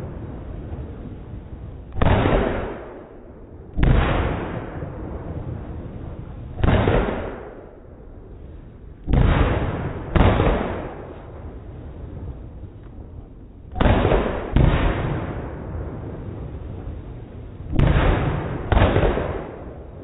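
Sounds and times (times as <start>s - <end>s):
fireworks booming: 0.0s - 20.0s.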